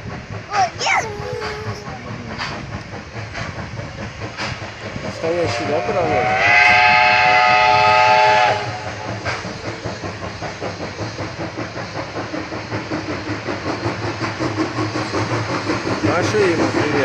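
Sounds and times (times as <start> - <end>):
locomotive running by: 0.0 - 17.0
steam locomotive whistle: 5.4 - 9.1.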